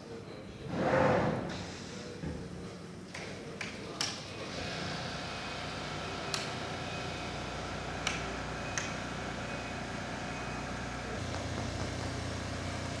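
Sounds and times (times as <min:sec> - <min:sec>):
sewing machine motor hum: 0:04.6 - 0:13.0.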